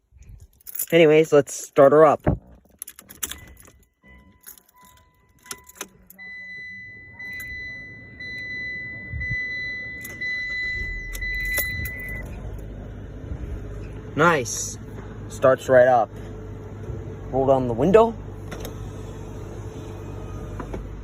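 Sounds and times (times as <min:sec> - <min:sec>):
car engine rumbling: 0:00.0 - 0:21.0
keys jangling and clicking: 0:00.2 - 0:01.1, 0:02.4 - 0:06.2, 0:11.0 - 0:12.3
car warning chimes: 0:02.9 - 0:12.4.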